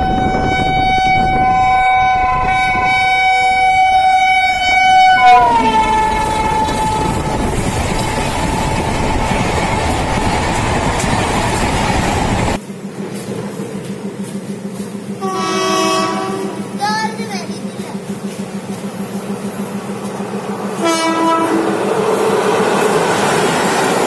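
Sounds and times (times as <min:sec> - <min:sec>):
locomotive horn: 0:00.0 - 0:07.6, 0:15.2 - 0:16.8, 0:20.8 - 0:21.8.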